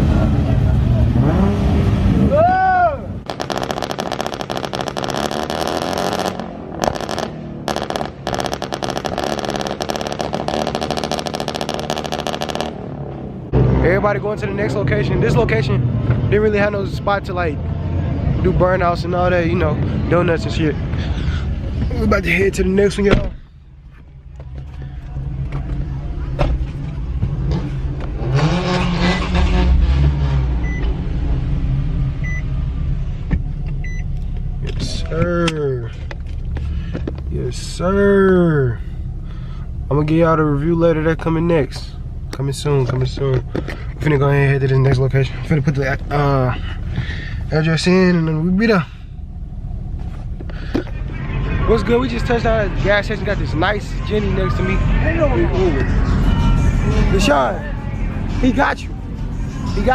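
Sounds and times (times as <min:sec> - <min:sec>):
car engine revving: 0:00.0 - 0:02.5, 0:03.1 - 0:23.2, 0:23.9 - 0:59.9
sharp exhaust pulses: 0:03.2 - 0:13.8.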